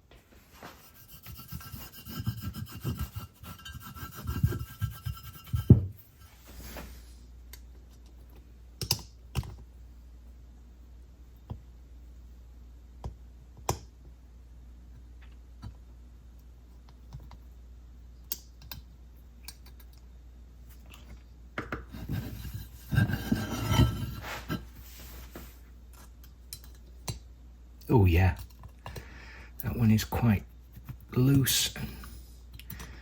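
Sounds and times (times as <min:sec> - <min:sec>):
metal parts clicking and tapping: 0:08.8 - 0:09.6.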